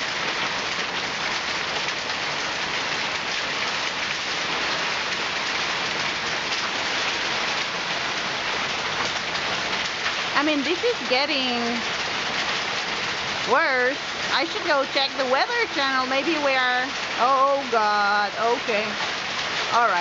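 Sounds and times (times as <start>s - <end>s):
heavy rain with hail: 0.0s - 20.0s.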